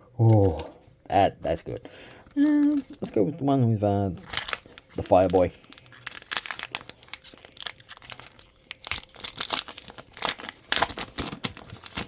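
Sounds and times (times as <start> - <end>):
foil wrapper crinkling and tearing: 4.2 - 12.0.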